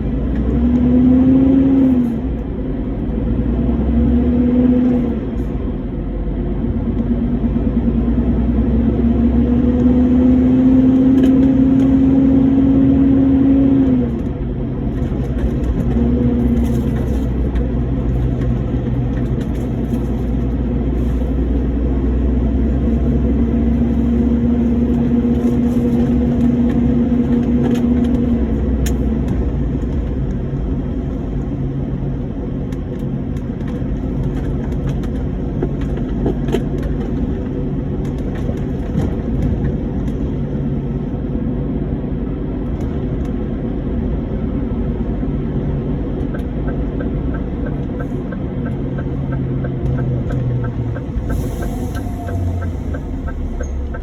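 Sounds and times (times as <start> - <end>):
road rumble: 0.0 - 54.0
lorry engine: 45.8 - 54.0.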